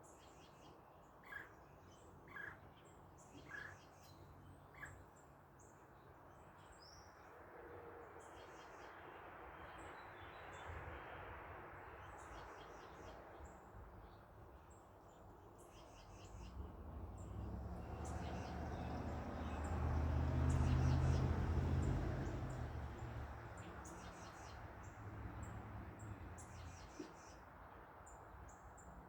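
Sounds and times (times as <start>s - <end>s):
car passing: 16.3s - 26.9s.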